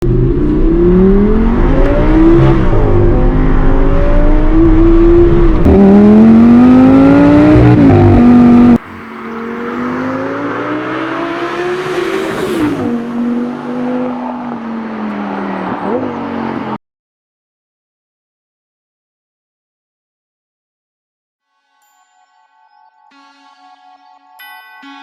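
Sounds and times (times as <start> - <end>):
car engine accelerating hard: 0.0 - 16.8.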